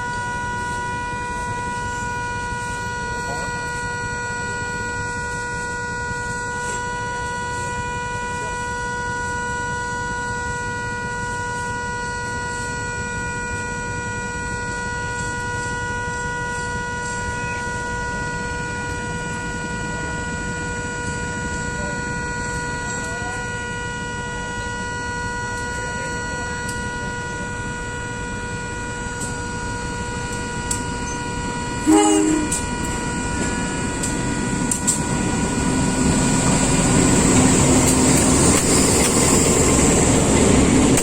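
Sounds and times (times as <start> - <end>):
steady high-pitched tone: 24.4 - 41.0.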